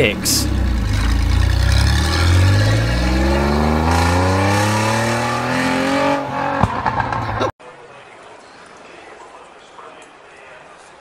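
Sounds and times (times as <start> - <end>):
car engine accelerating: 0.0 - 7.5.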